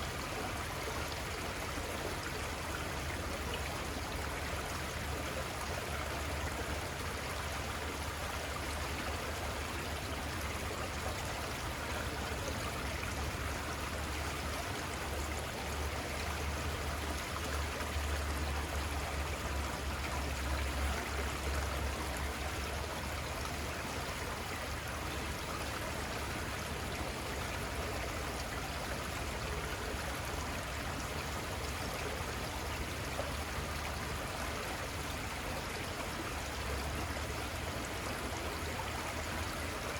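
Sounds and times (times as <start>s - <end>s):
river flowing: 0.0s - 39.9s.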